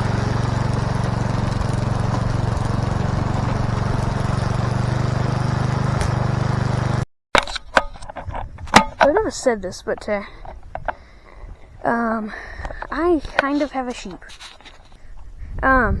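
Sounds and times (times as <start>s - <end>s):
small engine droning: 0.0s - 7.1s
sharp clicks or knocks: 6.0s - 6.4s.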